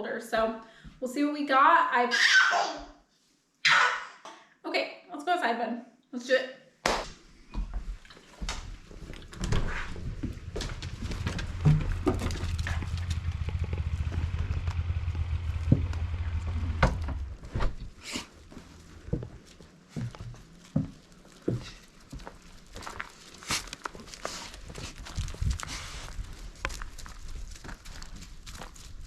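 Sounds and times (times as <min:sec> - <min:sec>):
footsteps: 0:06.9 - 0:29.0
steady low rumble: 0:08.7 - 0:22.8.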